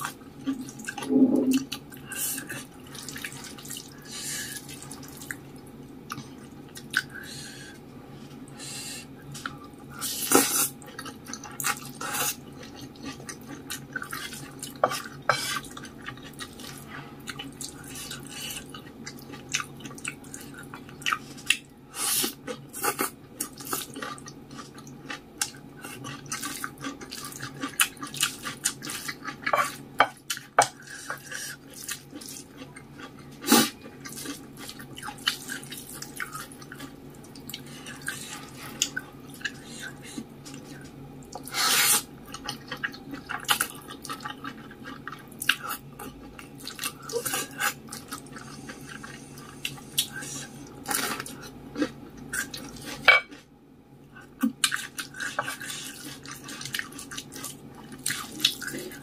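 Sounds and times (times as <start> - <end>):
chewing and slurping noodles: 0.0 - 5.4, 9.4 - 53.5, 54.2 - 59.0
low hum: 1.0 - 1.7.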